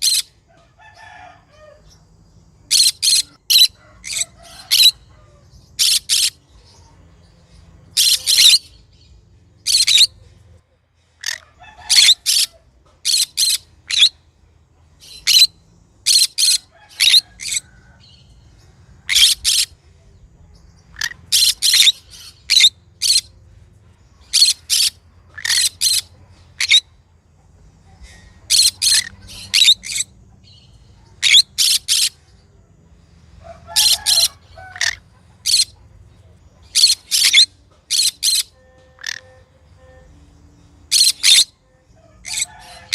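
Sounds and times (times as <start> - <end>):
parrot chirps and squawks: 0.0 - 2.0, 2.7 - 8.9, 9.6 - 19.8, 20.7 - 23.4, 24.2 - 27.0, 27.6 - 32.3, 33.3 - 42.9.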